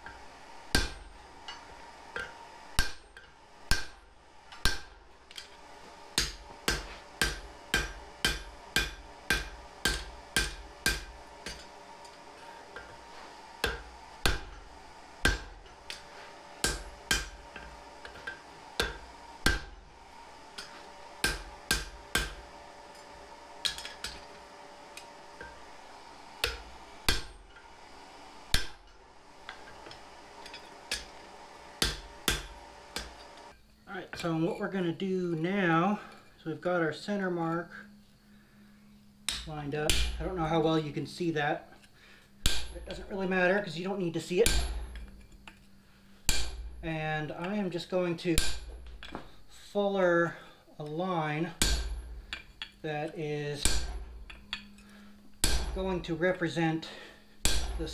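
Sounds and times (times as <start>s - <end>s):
hammer striking steel on anvil: 0.0s - 5.5s, 6.2s - 13.0s, 13.6s - 19.8s, 20.5s - 25.7s, 26.4s - 27.6s, 28.5s - 31.2s, 31.8s - 33.4s, 39.3s - 40.5s, 42.4s - 43.4s, 44.4s - 45.6s, 46.2s - 46.8s, 48.4s - 49.3s, 51.5s - 52.8s, 53.6s - 56.2s, 57.4s - 57.9s
faint steady hum: 0.0s - 57.9s.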